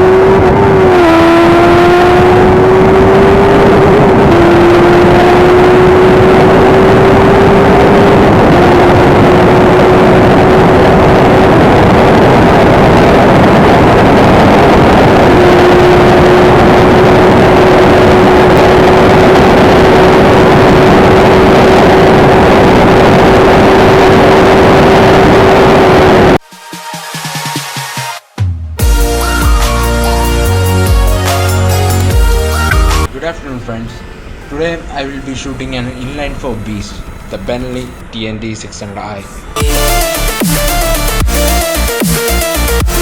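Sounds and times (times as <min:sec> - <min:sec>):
motorcycle engine at high revs: 0:00.0 - 0:26.3
rushing wind noise: 0:00.0 - 0:26.4.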